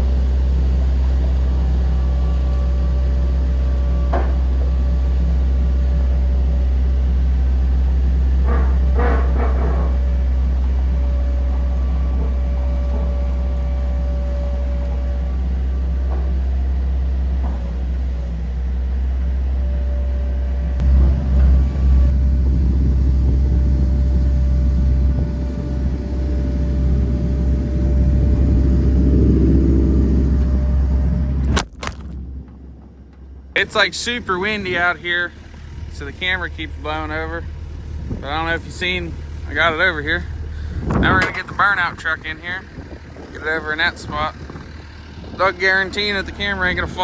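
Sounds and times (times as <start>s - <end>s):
wind buffeting microphone: 20.7s - 47.0s.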